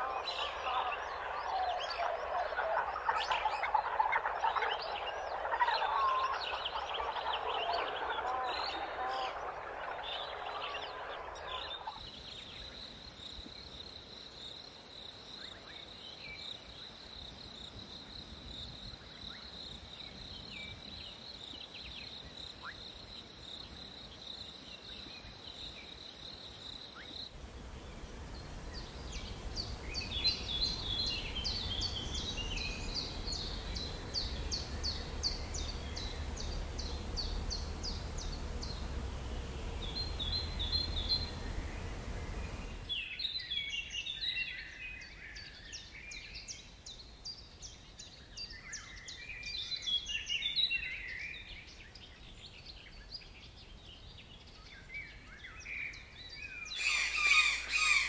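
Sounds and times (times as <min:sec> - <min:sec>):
birds chirping: 0:00.0 - 0:12.8, 0:27.2 - 0:45.2, 0:55.9 - 0:58.0
soft hiss: 0:27.3 - 0:43.0
high insect trill: 0:27.4 - 0:42.9
low rumble: 0:27.4 - 0:42.9.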